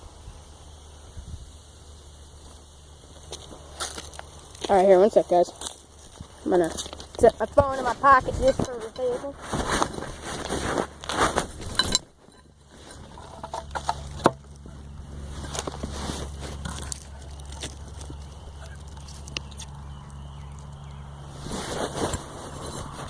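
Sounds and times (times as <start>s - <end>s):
low hum: 0.0s - 23.0s
phone microphone rubbing: 6.2s - 18.8s, 21.3s - 23.0s.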